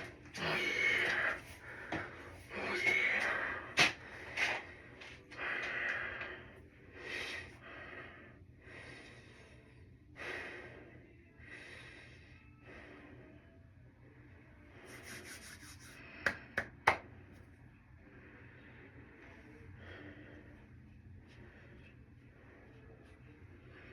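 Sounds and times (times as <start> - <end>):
person breathing hard: 0.0 - 13.4.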